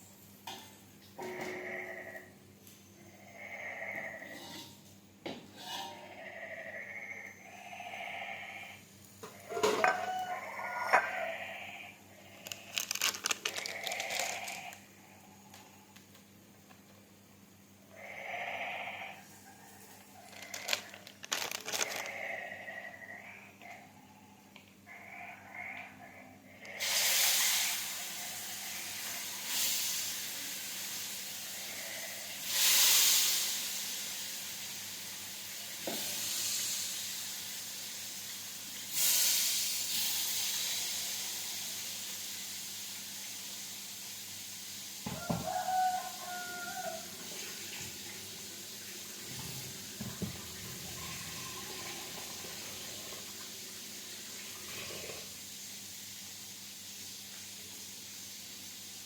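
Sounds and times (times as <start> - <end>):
food sizzling in hot oil: 26.8 - 31.6, 32.4 - 54.4.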